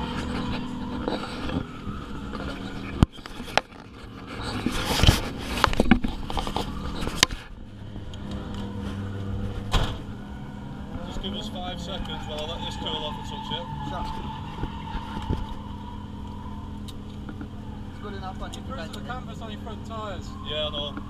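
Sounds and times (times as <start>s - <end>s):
car engine running: 0.0s - 21.0s
camera knocks and scraping: 2.3s - 7.4s.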